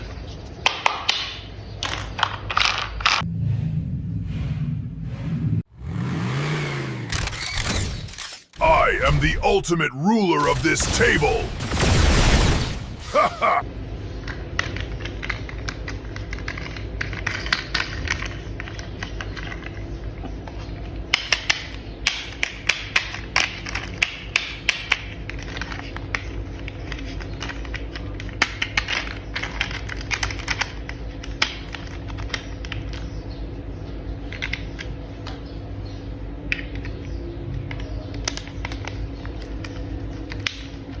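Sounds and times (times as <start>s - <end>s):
plastic toy parts clicking: 14.2s - 19.8s, 21.1s - 33.1s.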